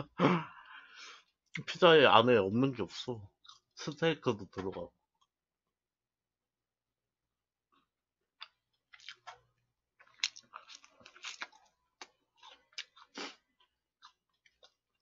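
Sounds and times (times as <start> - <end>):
person chewing crunchy food: 8.4 - 15.0.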